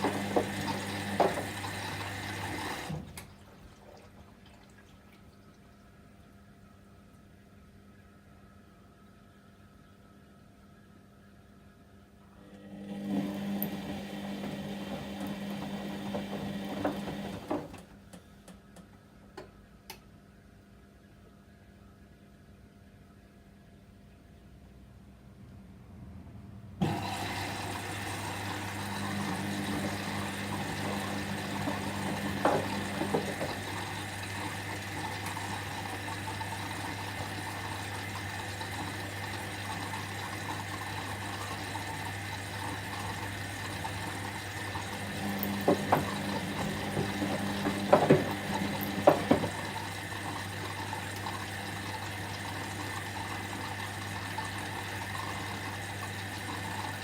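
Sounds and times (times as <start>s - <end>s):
water running into drum: 0.0s - 5.8s, 12.9s - 17.8s, 26.8s - 57.0s.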